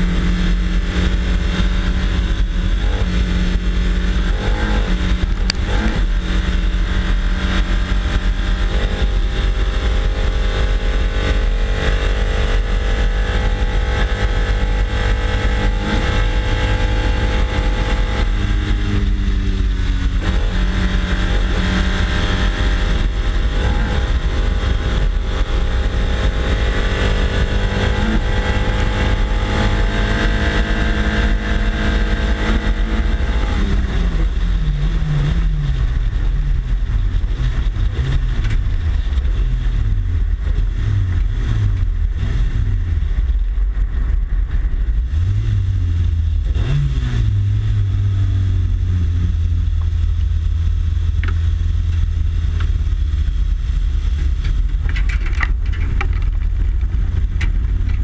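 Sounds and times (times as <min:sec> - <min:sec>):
race car engine revving: 0:00.0 - 0:58.0
wind rumble on microphone: 0:00.0 - 0:58.0.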